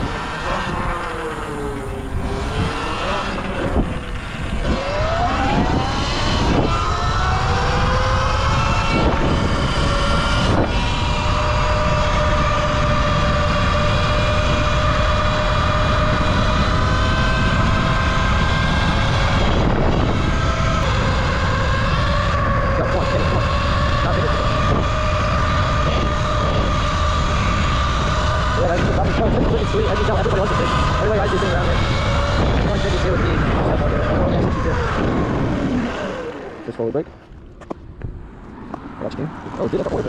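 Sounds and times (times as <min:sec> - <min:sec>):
electric motorbike motor whining: 0:00.0 - 0:40.0
wind and tyre noise: 0:00.0 - 0:40.0.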